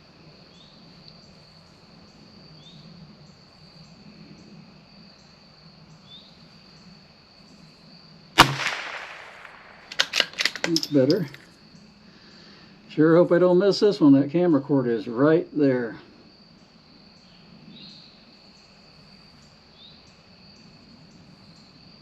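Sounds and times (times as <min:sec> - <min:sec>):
crickets chirping: 0:00.0 - 0:22.0
rifle shot: 0:08.4 - 0:11.2.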